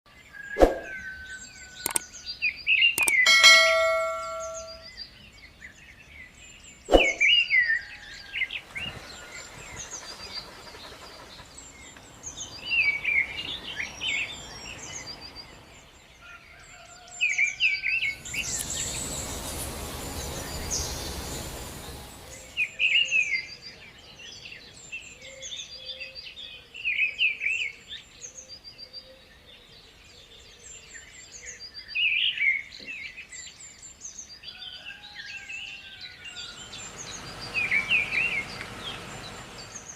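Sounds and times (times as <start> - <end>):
steady hiss: 18.2 - 22.7
birds chirping and calling: 36.4 - 39.9.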